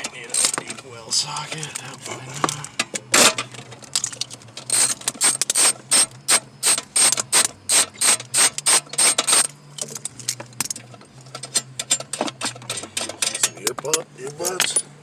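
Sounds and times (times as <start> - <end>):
socket ratchet clicking: 4.7 - 9.4.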